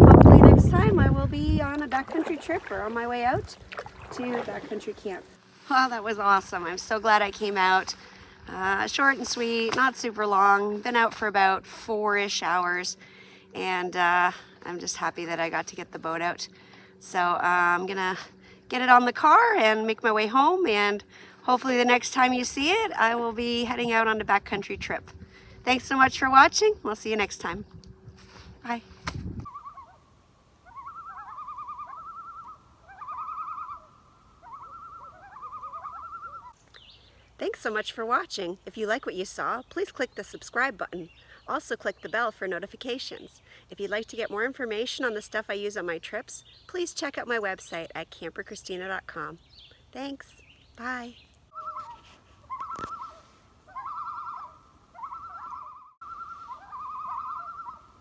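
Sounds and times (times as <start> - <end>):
bird trilling whistle: 29.4 - 30.0, 30.6 - 36.6, 51.6 - 58.0
loon tremolo call: 29.5 - 36.6, 51.5 - 58.0.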